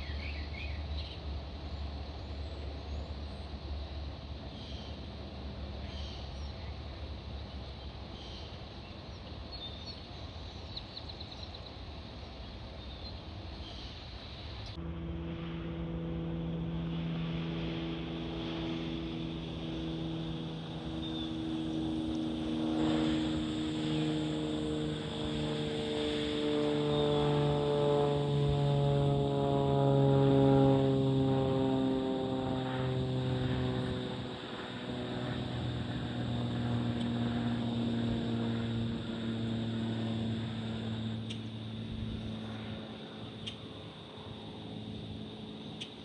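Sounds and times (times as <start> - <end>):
aircraft engine drone: 0.0 - 46.0
low rumble: 14.8 - 25.7.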